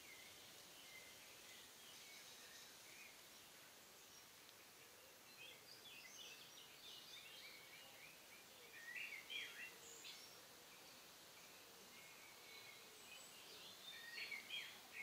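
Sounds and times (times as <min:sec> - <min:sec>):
faint birdsong: 0:00.0 - 0:15.0
quiet outdoor hiss: 0:00.0 - 0:15.0.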